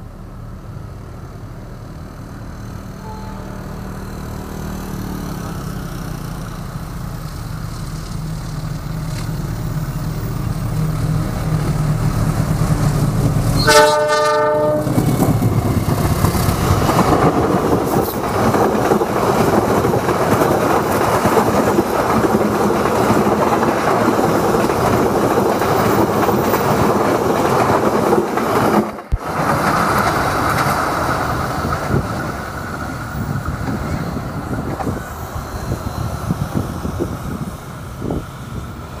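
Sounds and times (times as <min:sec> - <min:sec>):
locomotive engine rumble: 0:00.0 - 0:39.0
train wheels on rails: 0:00.0 - 0:39.0
train horn blast: 0:03.0 - 0:04.0, 0:13.6 - 0:15.0.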